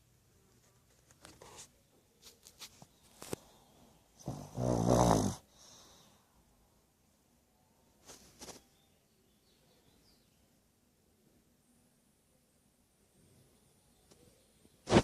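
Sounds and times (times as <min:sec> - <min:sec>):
dog snoring: 0:04.2 - 0:05.8.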